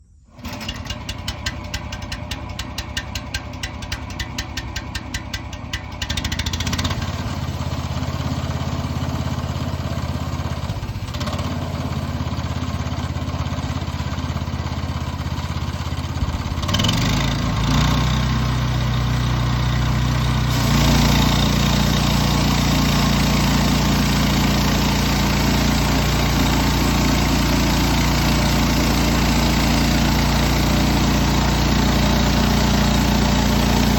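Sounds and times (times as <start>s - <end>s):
rapid even clicking: 0.9s - 6.3s
bandsaw cutting wood: 20.5s - 33.9s.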